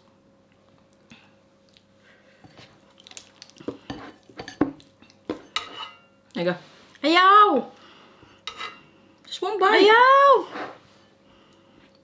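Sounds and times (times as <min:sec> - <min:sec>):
utensils clinking on plates: 0:03.8 - 0:06.1, 0:08.5 - 0:08.8.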